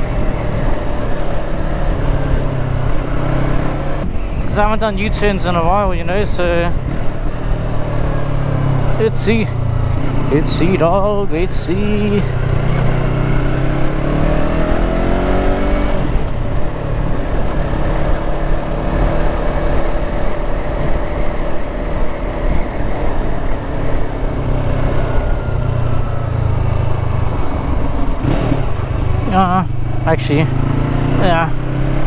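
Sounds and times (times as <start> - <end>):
motorcycle engine accelerating: 0.0 - 32.0
low rumble: 15.8 - 31.5.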